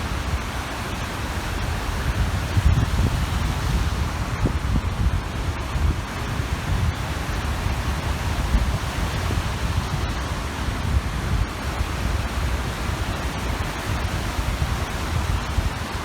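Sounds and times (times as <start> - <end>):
waves washing on shore: 0.0 - 16.0
wind gusting on microphone: 0.0 - 16.0.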